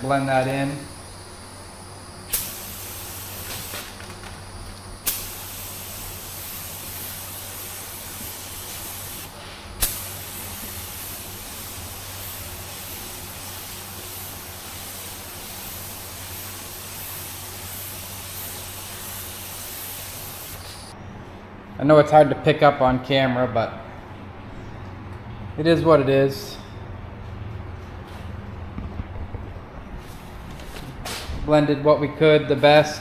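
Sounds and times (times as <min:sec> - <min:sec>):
sharp burst of air: 0:00.0 - 0:04.0, 0:05.0 - 0:21.0
paint spray gun hissing: 0:00.2 - 0:21.0.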